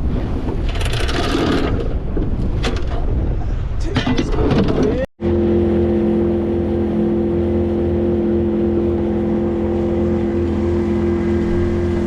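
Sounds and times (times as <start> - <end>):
outboard motor droning: 5.2 - 12.0.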